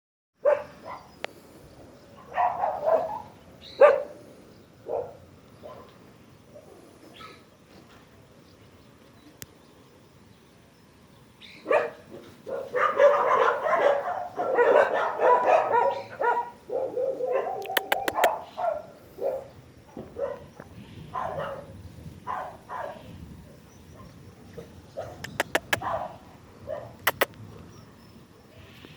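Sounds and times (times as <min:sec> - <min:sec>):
dogs barking: 0:00.4 - 0:01.1, 0:02.2 - 0:04.2, 0:04.8 - 0:06.0, 0:11.6 - 0:23.0, 0:25.0 - 0:27.3
sharp clicks: 0:17.6 - 0:18.3, 0:25.2 - 0:25.8, 0:27.0 - 0:27.4.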